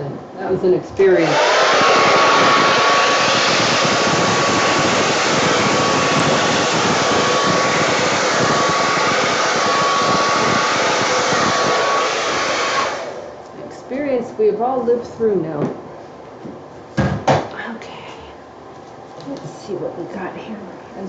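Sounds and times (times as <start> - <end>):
hair dryer blowing: 0.6 - 13.5
hair dryer switching off: 1.0 - 13.6.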